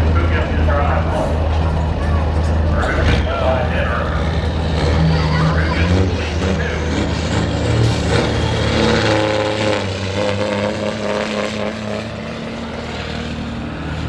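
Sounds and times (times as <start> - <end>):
truck diesel engine droning: 0.0 - 14.0
held hum: 1.0 - 3.3.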